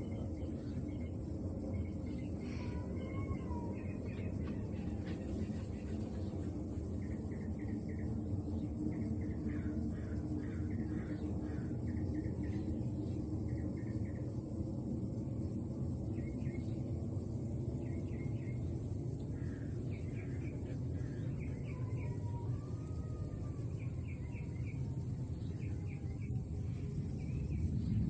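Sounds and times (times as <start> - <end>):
steady low rumble: 0.0 - 2.6, 3.5 - 21.7, 23.3 - 28.0
small bird chirping: 17.7 - 28.0.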